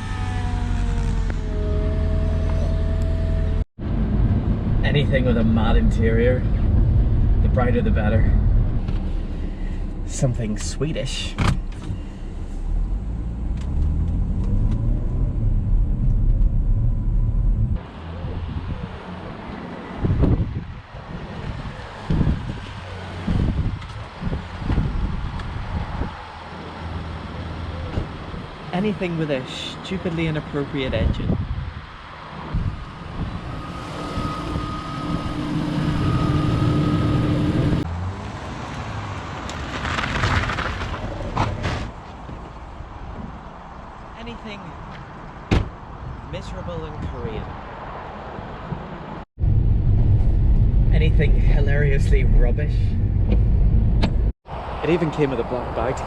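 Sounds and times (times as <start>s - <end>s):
rough vehicle sound: 0.0s - 56.0s
wind-like rushing noise: 16.6s - 27.2s, 30.8s - 37.9s, 45.0s - 56.0s.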